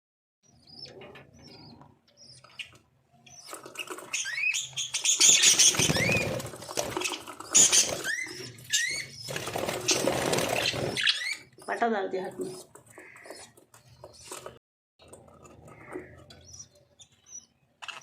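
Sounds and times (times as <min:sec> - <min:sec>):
lovebirds chirping: 0:00.4 - 0:18.0
wings flapping: 0:03.5 - 0:08.4, 0:09.2 - 0:11.3.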